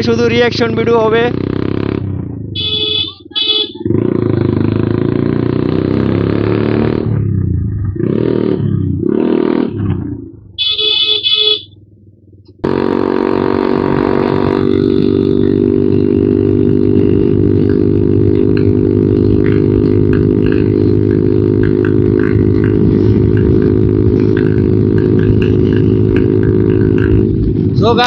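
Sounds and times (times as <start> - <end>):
motorcycle engine revving: 0.0 - 28.0
horn beeps: 2.6 - 4.6, 10.6 - 11.8.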